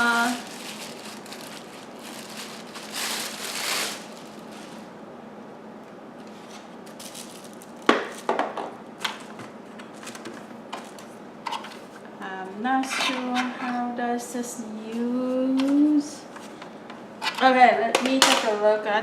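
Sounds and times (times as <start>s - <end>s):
packaging rustling: 0.0s - 5.0s, 6.2s - 8.4s.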